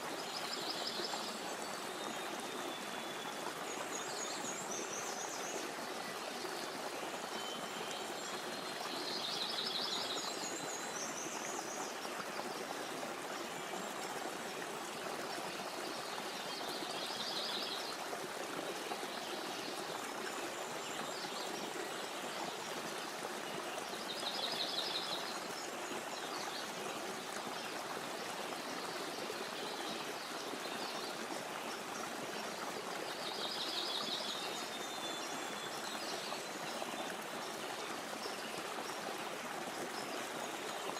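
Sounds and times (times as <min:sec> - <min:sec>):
stream running: 0:00.0 - 0:40.9
songbird singing: 0:00.2 - 0:11.9.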